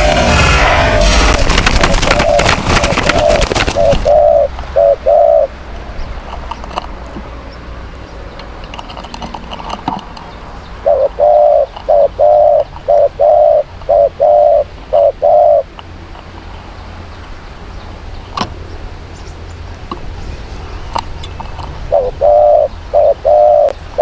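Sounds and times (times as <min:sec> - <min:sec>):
dove cooing: 0:01.5 - 0:05.6, 0:10.8 - 0:15.7, 0:21.8 - 0:24.0.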